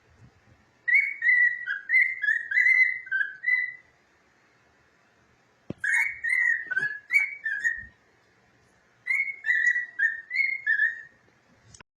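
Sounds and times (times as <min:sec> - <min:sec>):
cockatiel whistling: 0:00.9 - 0:03.9, 0:05.8 - 0:08.0, 0:09.0 - 0:11.2.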